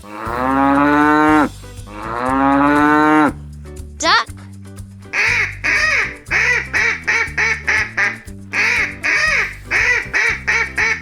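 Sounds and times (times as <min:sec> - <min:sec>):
cheerful background music: 0:00.0 - 0:11.0
duck quacking: 0:05.1 - 0:11.0.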